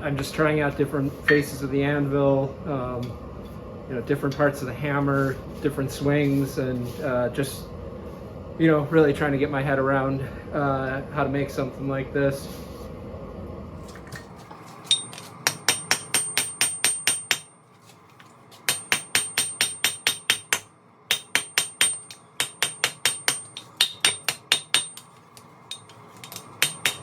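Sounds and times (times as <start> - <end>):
hammer ringing on anvil: 14.9 - 17.6, 18.7 - 25.1, 25.7 - 27.0.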